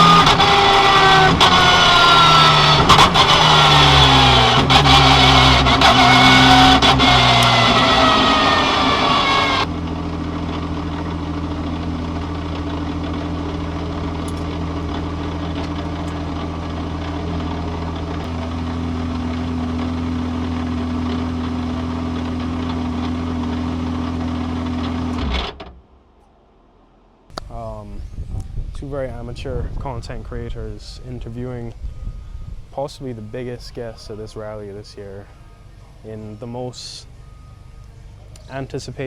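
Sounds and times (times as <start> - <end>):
car engine idling: 0.0 - 26.2, 30.7 - 39.0.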